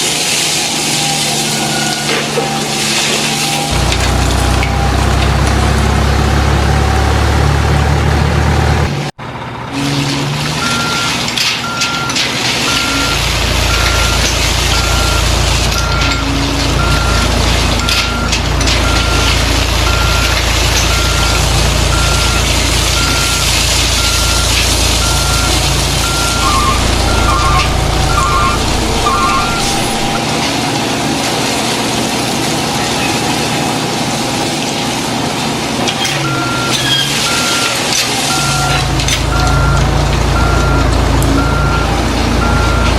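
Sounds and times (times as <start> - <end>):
reversing beeper: 0.8 - 5.1, 9.8 - 30.8, 36.2 - 42.9
low engine rumble: 3.7 - 34.2, 35.7 - 42.9
lower double beep: 24.0 - 30.3
loud low hum: 25.1 - 30.7.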